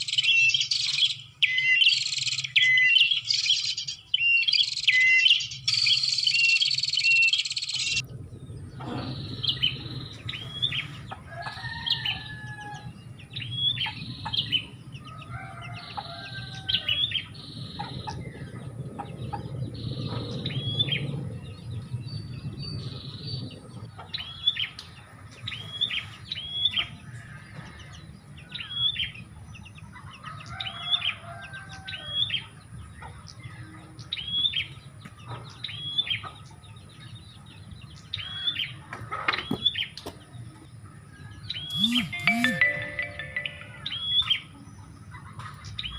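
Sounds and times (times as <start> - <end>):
dense chattering bird calls: 0.0 - 45.9
sharp high bird call notes: 41.7 - 44.5.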